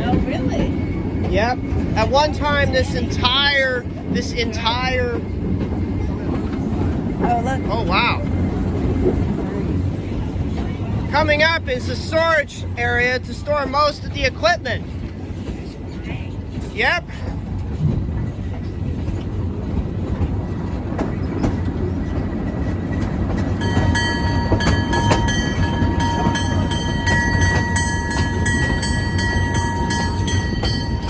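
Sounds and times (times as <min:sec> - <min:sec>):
train rumbling: 0:00.0 - 0:31.0
locomotive bell ringing: 0:23.5 - 0:31.0.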